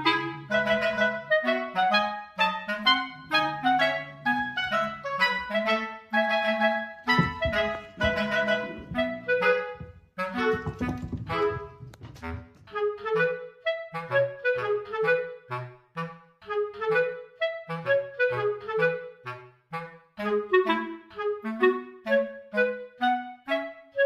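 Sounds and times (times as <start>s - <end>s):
woodwind melody: 0.0s - 24.0s
bass line: 7.1s - 10.0s.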